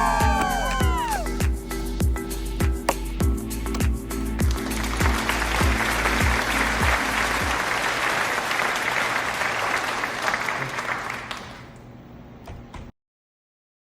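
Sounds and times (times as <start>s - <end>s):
background music with steady beat: 0.0s - 7.8s
applause: 4.4s - 11.8s.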